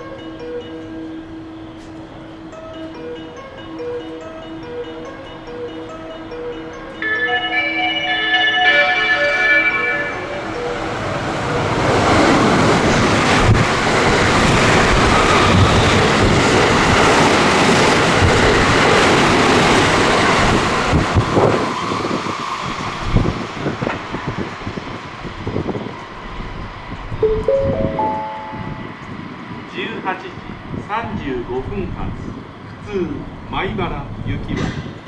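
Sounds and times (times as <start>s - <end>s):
train passing: 0.0s - 35.0s
rising platform chime: 7.0s - 11.9s, 27.2s - 29.2s.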